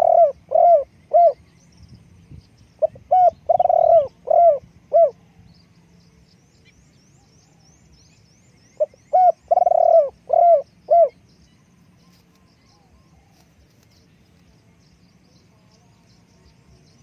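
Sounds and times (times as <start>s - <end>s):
dove cooing: 0.0s - 1.4s, 2.8s - 5.4s, 8.8s - 11.2s.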